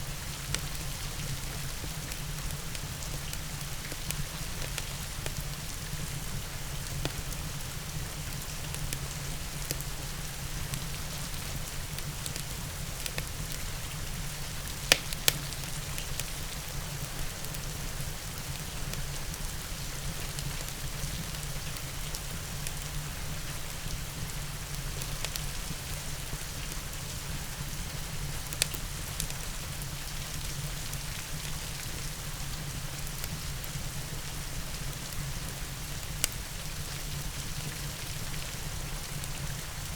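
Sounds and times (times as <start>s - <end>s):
steady rain falling: 0.0s - 39.9s
fire crackling: 11.4s - 18.6s
sharp pops: 14.8s - 15.7s.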